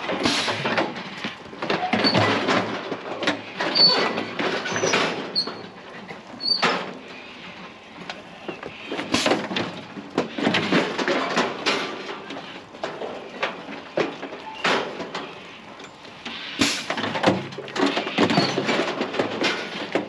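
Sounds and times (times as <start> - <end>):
steel gates rattling: 0.0 - 20.0
short metallic squeaks: 1.8 - 2.4, 3.7 - 7.2, 17.8 - 18.8.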